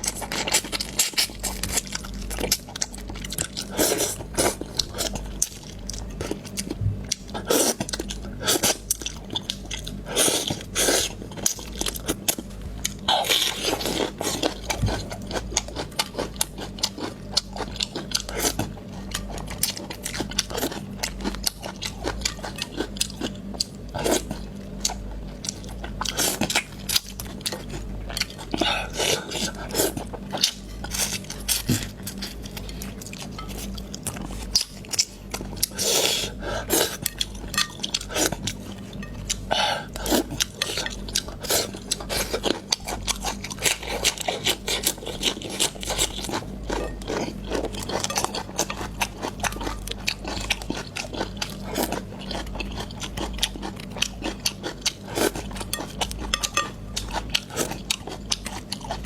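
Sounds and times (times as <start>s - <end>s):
person chewing: 0.0s - 59.0s.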